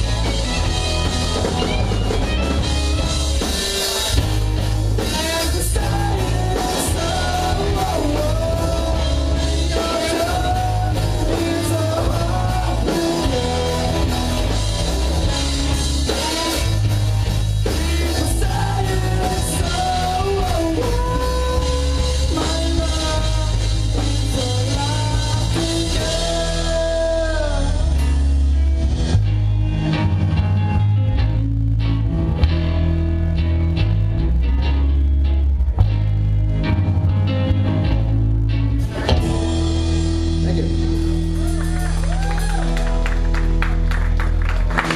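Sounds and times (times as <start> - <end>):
live rock band playing: 0.0 - 44.9
person singing: 5.0 - 15.0, 16.0 - 17.0, 17.6 - 28.5.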